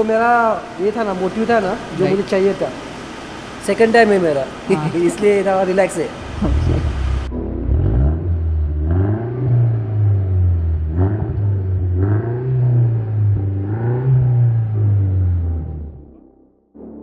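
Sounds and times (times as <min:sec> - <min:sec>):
car engine idling and revving: 0:06.2 - 0:16.0.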